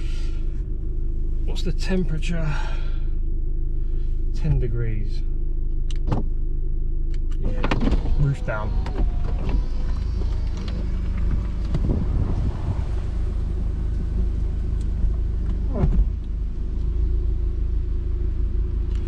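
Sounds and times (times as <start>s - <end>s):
car engine rumbling: 0.0s - 19.0s
wind noise on microphone: 8.9s - 13.3s.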